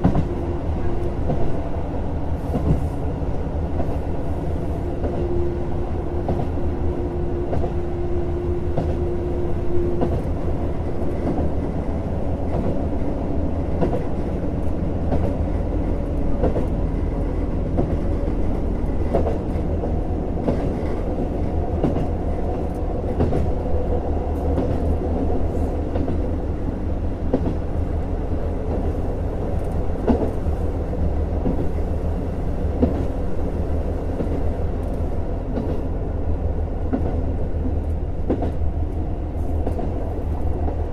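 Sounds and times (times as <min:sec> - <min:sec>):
diesel railcar engine drone: 0:00.0 - 0:40.9.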